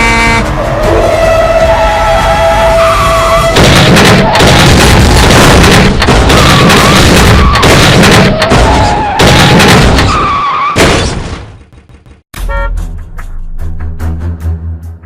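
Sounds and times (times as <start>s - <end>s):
loud crunching impacts: 3.5s - 12.2s
music: 12.3s - 15.0s.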